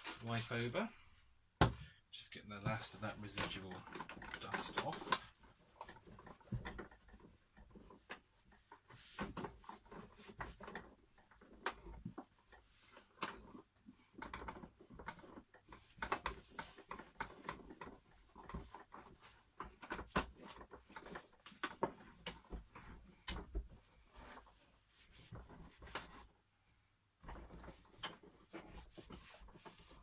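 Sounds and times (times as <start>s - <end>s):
cloth rubbing plastic casing: 0.0s - 0.8s, 27.2s - 30.0s.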